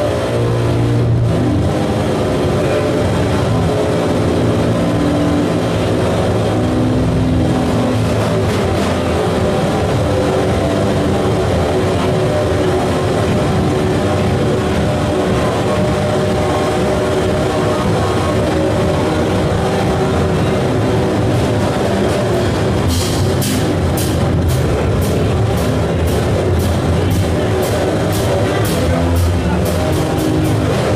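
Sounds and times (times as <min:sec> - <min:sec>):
dense electronic noise: 0:00.0 - 0:30.9
low droning tones: 0:00.0 - 0:30.9.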